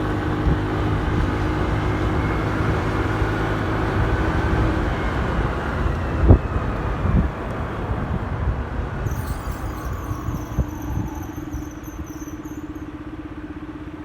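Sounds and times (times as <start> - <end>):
wind rumble on microphone: 0.0 - 12.9
road traffic: 0.0 - 14.0
high wavering squeal: 9.0 - 13.5.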